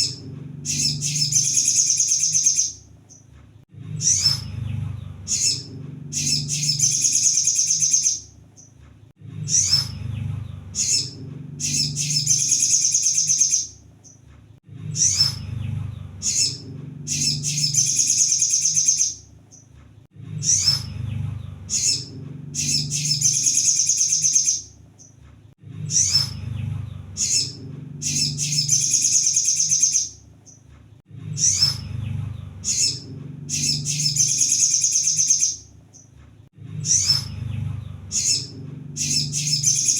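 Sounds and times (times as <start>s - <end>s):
low rumble: 0.0s - 1.7s, 3.6s - 7.0s, 8.3s - 12.6s, 14.5s - 18.1s, 19.2s - 23.5s, 24.7s - 29.0s, 31.0s - 34.4s, 36.4s - 39.9s
sunbird chirps and trill: 0.0s - 3.3s, 3.9s - 8.8s, 9.4s - 14.2s, 14.8s - 19.7s, 20.4s - 25.2s, 25.8s - 30.6s, 31.3s - 36.1s, 36.8s - 39.9s.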